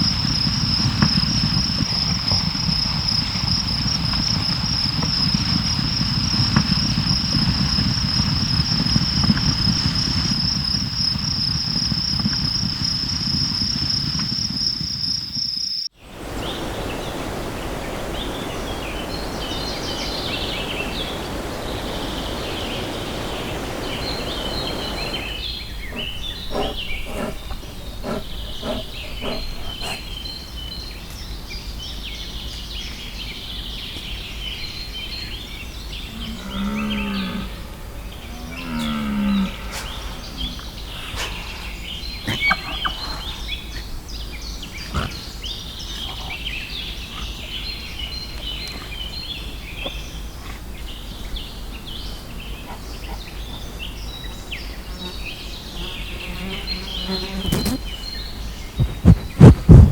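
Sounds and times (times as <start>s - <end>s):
high insect trill: 0.0s - 31.4s
birds chirping: 0.0s - 59.9s
rushing background noise: 16.0s - 30.9s, 57.4s - 59.9s
animal lowing: 16.2s - 30.3s, 44.7s - 47.6s, 58.7s - 59.9s.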